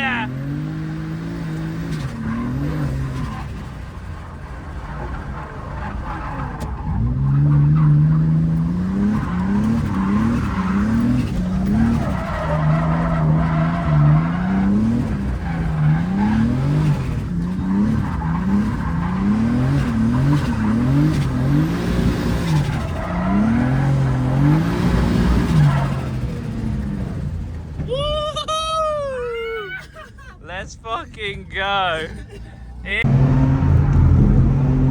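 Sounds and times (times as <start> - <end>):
car engine revving hard: 0.0 - 4.1, 6.6 - 27.8, 32.9 - 34.9.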